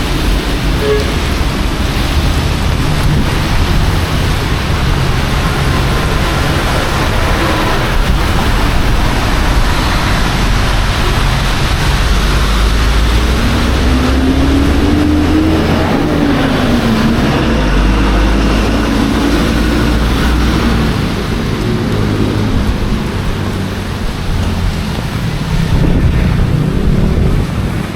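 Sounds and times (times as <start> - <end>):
heavy rain falling: 0.0 - 27.9.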